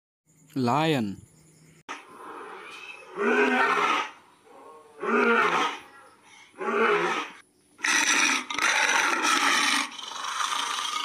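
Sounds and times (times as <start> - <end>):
lion roaring: 2.1 - 6.0, 6.6 - 11.0.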